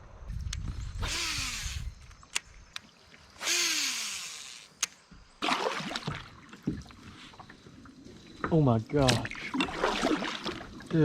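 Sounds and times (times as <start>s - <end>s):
kayak paddle splashing: 5.3s - 11.0s.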